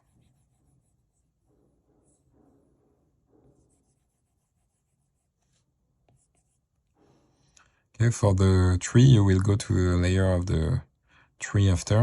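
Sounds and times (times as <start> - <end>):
stylus scratching on glass screen: 0.0 - 7.0.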